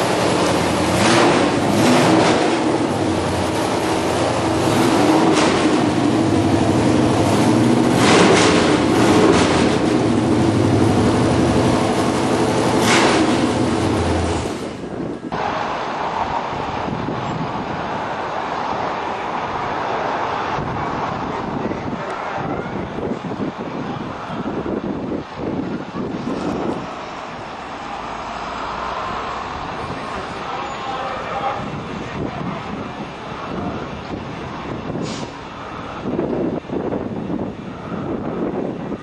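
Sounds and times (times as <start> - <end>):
car engine revving loudly: 0.0 - 14.7.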